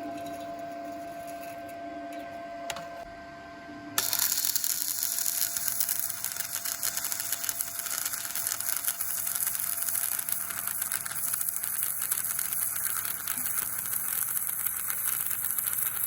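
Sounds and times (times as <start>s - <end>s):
arc welding crackle: 4.0s - 16.0s.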